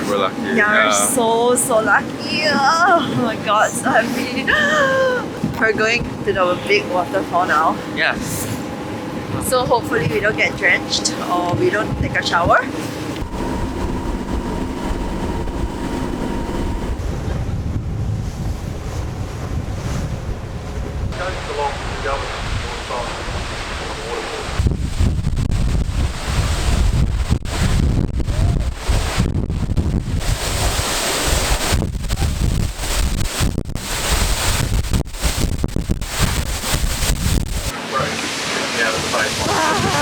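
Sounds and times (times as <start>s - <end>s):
faint steady whine: 0.0s - 17.5s
boat engine running: 0.0s - 40.0s
wind buffeting microphone: 0.0s - 40.0s
deep rumble: 1.1s - 37.8s
waterfall rushing: 37.5s - 40.0s.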